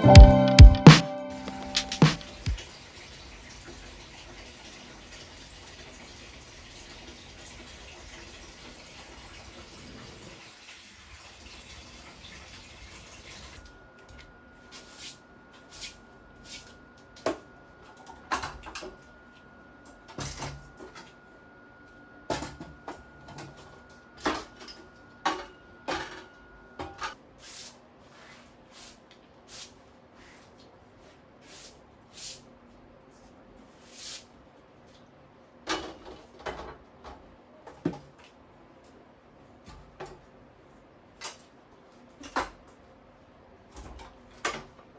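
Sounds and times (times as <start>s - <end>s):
running tap water: 2.4s - 13.6s.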